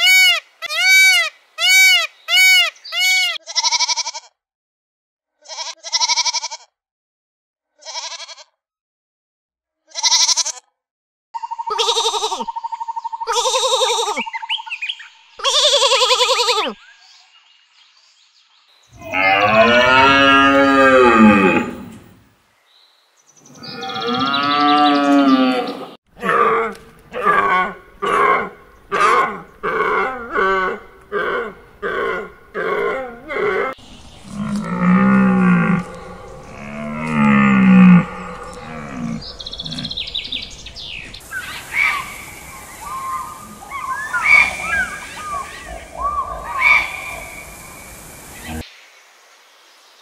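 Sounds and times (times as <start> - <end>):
deer calling: 0.0 - 4.2, 11.6 - 12.4, 19.0 - 22.1, 23.5 - 42.2
high chirping calls: 33.8 - 48.6.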